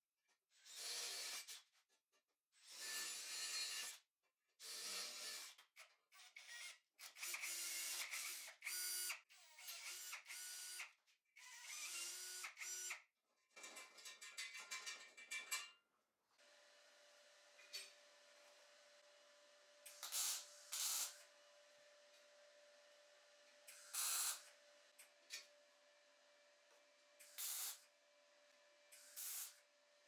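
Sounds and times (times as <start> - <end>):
workshop tool working material: 16.4 - 21.3, 23.4 - 25.6, 26.6 - 27.9, 28.8 - 29.7.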